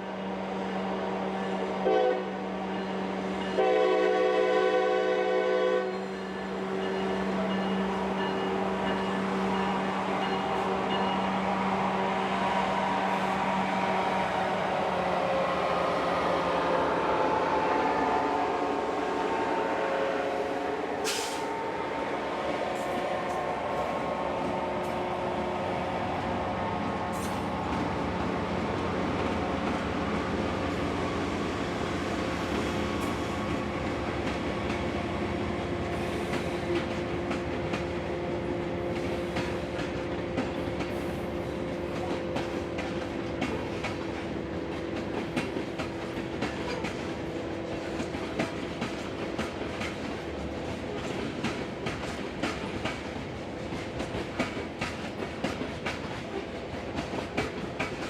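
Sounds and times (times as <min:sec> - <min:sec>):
locomotive engine hum: 0:01.8 - 0:58.0
train wheels clicking on rail joints: 0:21.0 - 0:58.0.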